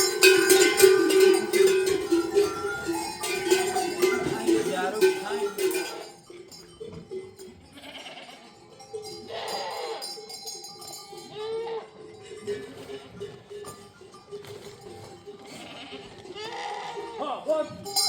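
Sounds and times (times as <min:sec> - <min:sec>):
animal bells ringing: 0:00.0 - 0:18.0
livestock bleating: 0:07.5 - 0:08.6, 0:09.3 - 0:10.2, 0:11.3 - 0:12.1, 0:15.0 - 0:17.9.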